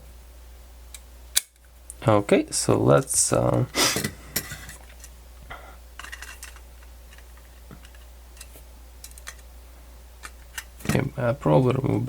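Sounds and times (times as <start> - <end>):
small parts clicking and tapping: 6.0 - 9.5.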